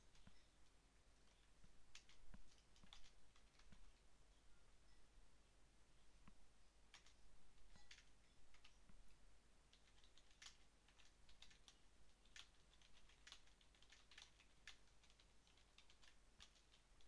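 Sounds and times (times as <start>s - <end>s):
computer keyboard typing: 1.3s - 3.8s, 6.9s - 8.8s, 9.7s - 17.0s.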